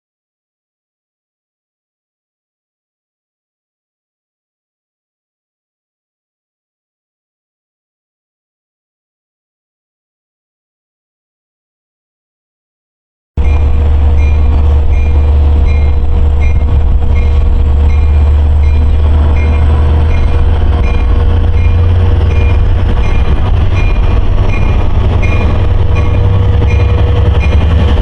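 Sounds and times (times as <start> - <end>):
train rumbling: 13.4 - 28.0.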